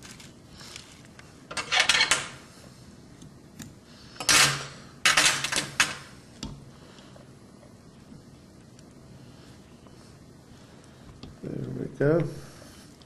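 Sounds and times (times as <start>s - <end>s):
tools clattering and scraping: 0.0s - 2.4s.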